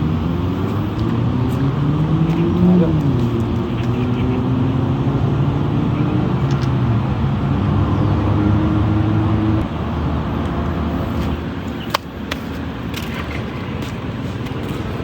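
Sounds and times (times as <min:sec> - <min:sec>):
engine humming: 0:00.0 - 0:15.0
steady rushing noise: 0:00.0 - 0:15.0
sharp clicks: 0:06.4 - 0:06.9.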